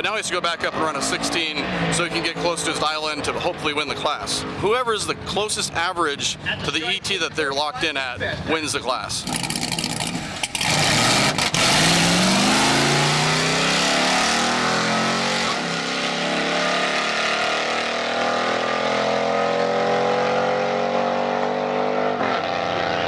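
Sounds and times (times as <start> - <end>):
drag racing engine accelerating: 0.1 - 4.7, 9.2 - 23.0.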